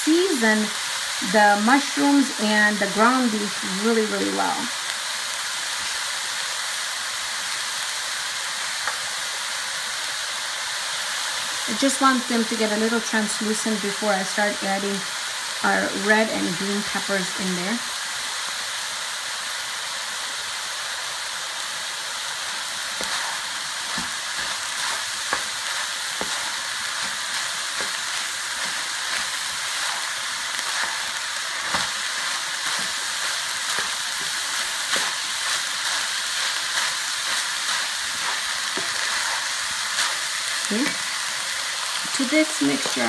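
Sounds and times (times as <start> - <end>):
meat sizzling in a frying pan: 0.0 - 43.0
wooden spoon scraping: 22.4 - 41.2, 41.9 - 43.0.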